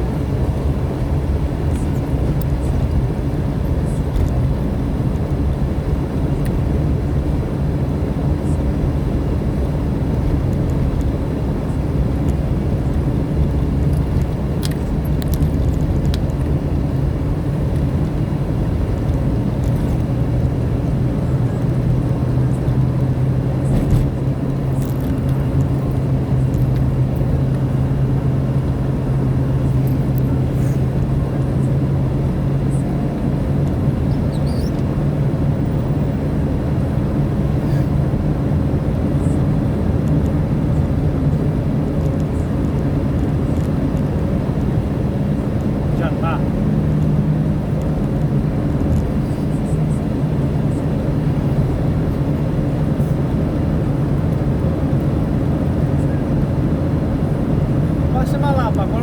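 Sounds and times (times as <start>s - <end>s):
road noise: 0.0s - 59.0s
vehicle engine humming: 0.0s - 59.0s.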